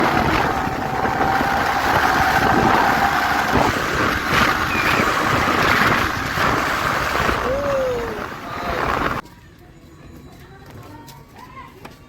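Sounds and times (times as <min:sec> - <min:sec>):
wind noise on microphone: 0:00.0 - 0:09.2
vehicle rumble: 0:00.0 - 0:10.6.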